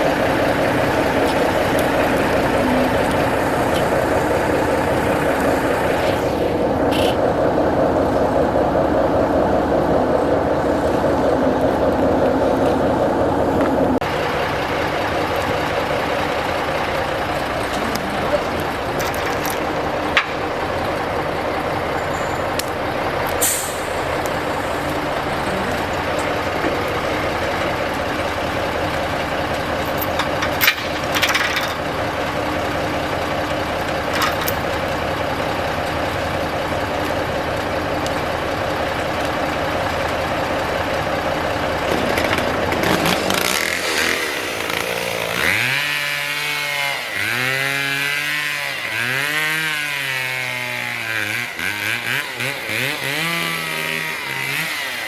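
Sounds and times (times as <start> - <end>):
chainsaw revving: 0.0 - 7.2, 13.4 - 34.1, 41.8 - 55.0
heavy diesel engine running: 0.0 - 55.0
air hisses: 23.3 - 25.5.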